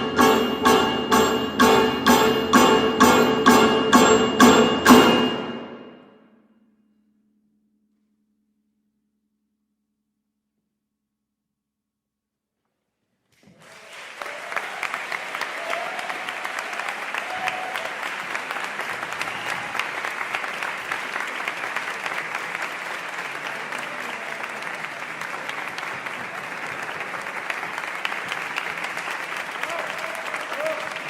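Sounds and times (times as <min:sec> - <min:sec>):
audience applauding: 0:13.4 - 0:31.0.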